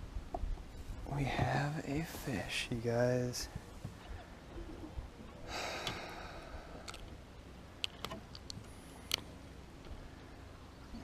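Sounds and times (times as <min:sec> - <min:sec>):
person breathing out heavily: 0:05.5 - 0:07.0.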